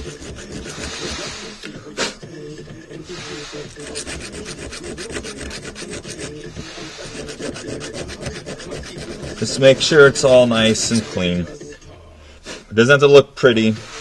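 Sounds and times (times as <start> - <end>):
hand file scraping metal: 0.0 - 1.7, 3.3 - 11.4.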